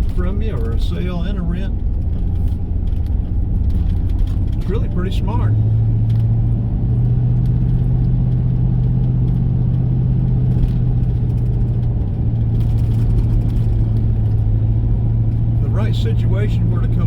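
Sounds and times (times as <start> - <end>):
car engine drone: 0.0 - 17.0.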